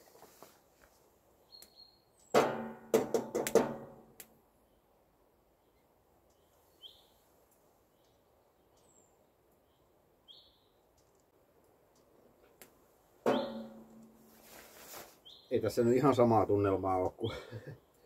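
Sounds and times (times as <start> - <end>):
short bird chirps: 6.4 - 7.2.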